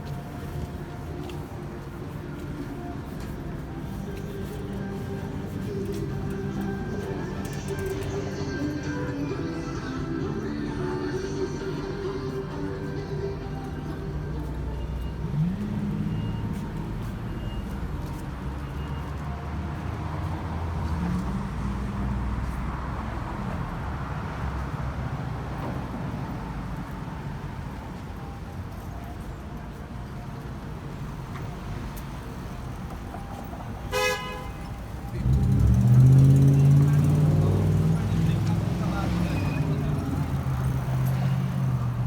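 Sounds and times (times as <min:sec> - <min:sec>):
traffic rumble: 0:00.0 - 0:42.0
car horn toot: 0:33.9 - 0:34.8
vehicle passing loudly: 0:35.2 - 0:42.0.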